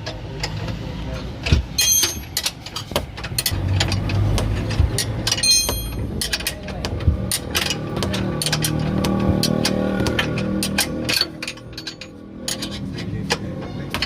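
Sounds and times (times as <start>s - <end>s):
metal tools knocking and clicking: 0.0s - 14.0s
ringing steel clinks: 5.4s - 6.0s.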